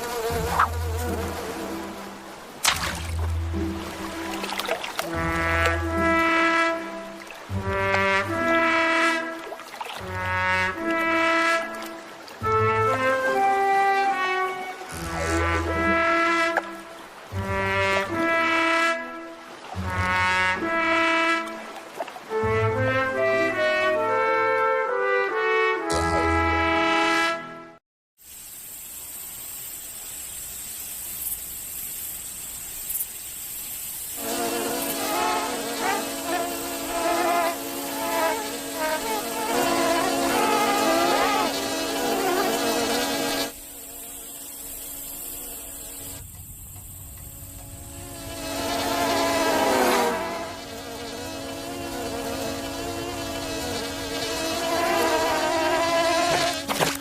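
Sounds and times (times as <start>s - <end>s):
insect chirr: 0.0s - 2.6s, 28.3s - 57.0s
even hiss: 0.0s - 8.6s, 28.2s - 57.0s
fly buzzing: 0.0s - 18.7s, 34.2s - 46.4s, 47.2s - 57.0s.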